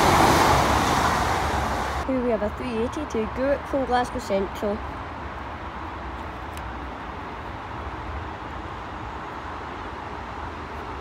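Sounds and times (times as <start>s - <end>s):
electric train running past: 0.0s - 2.0s.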